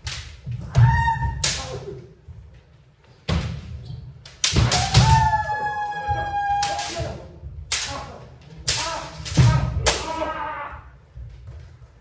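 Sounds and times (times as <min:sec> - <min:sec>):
bamboo sword strikes: 0:04.4 - 0:05.4, 0:06.6 - 0:08.1, 0:08.7 - 0:10.3
long high shout: 0:04.8 - 0:07.0.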